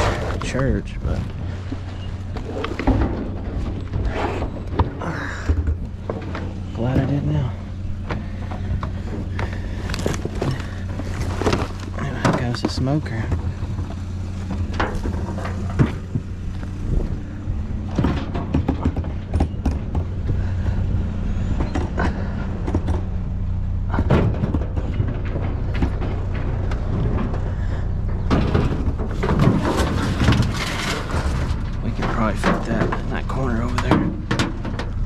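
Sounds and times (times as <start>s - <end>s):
vehicle engine idling: 0.0s - 35.0s
items knocking and clattering: 17.9s - 20.4s, 23.9s - 35.0s.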